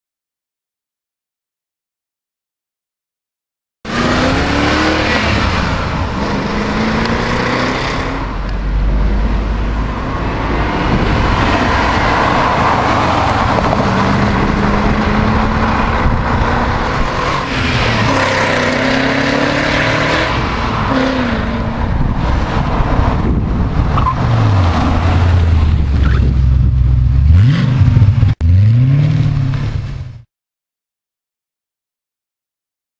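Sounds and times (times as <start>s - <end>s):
car engine revving: 3.9s - 30.1s
deep exhaust rumble: 21.5s - 30.2s.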